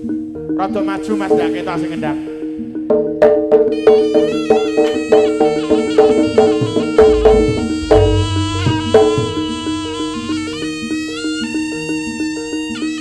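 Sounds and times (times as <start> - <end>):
reed-like melody: 4.2 - 11.7
metallic struck notes: 6.5 - 10.6
sustained ringing tones: 6.6 - 10.5
deep drum or gong hits: 6.9 - 10.0.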